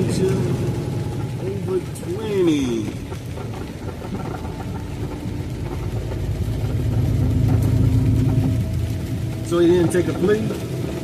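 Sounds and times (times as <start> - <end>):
road noise: 0.0 - 11.0
truck engine under load: 0.0 - 11.0.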